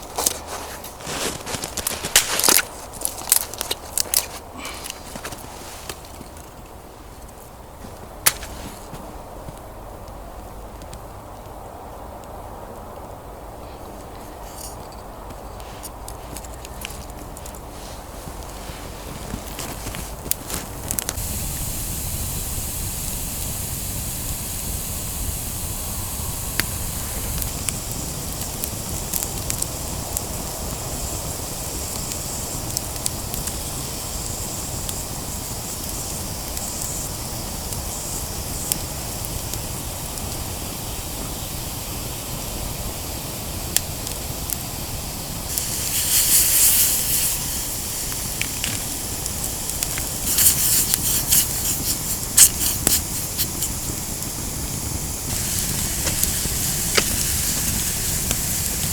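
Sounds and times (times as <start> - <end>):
loud hiss: 0.0 - 6.5, 17.2 - 58.9
campfire crackling and popping: 0.0 - 13.1, 15.1 - 58.9
steady rushing noise: 17.2 - 37.6.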